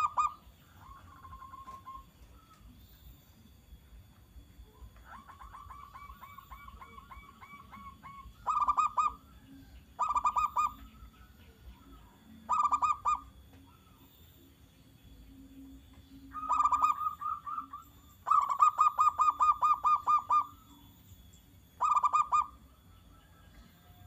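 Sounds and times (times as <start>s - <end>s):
dove cooing: 0.0s - 2.6s, 4.7s - 14.1s, 16.2s - 20.8s, 21.8s - 22.6s.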